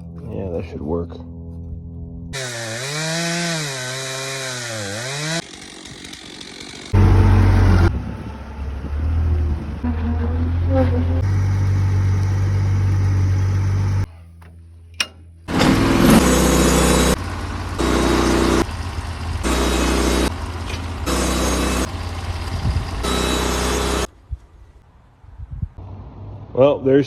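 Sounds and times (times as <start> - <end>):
saw blade cutting log: 2.4 - 7.9, 15.6 - 18.7, 19.4 - 24.1
sawmill engine running: 2.4 - 14.1, 15.5 - 24.1.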